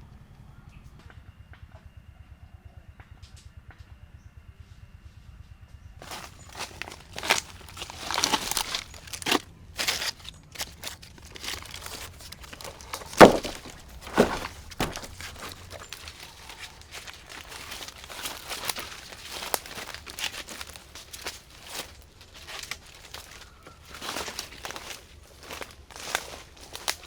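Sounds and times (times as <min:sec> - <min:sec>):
twigs and brush rustling: 0:06.0 - 0:27.0
twigs snapping: 0:06.0 - 0:27.0.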